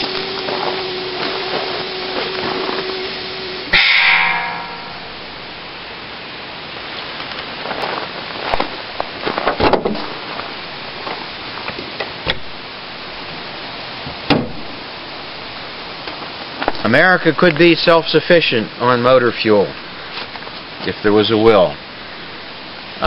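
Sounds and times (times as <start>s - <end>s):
gas venting hiss: 0.0s - 7.6s.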